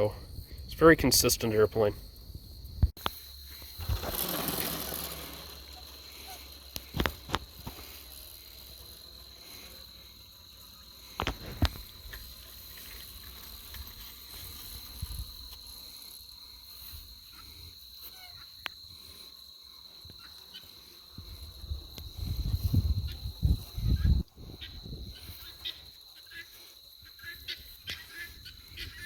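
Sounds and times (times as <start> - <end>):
high-pitched insect buzz: 2.5 - 29.0.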